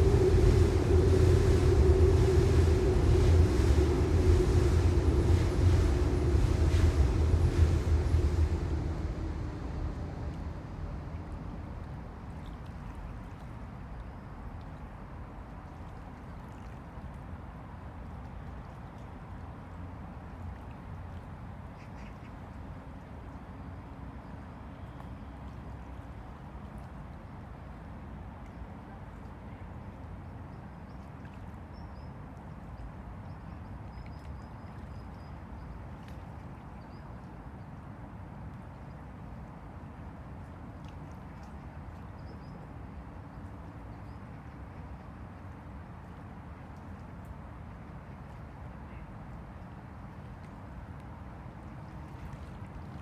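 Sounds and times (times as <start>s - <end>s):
low steady rumble: 0.0s - 13.8s.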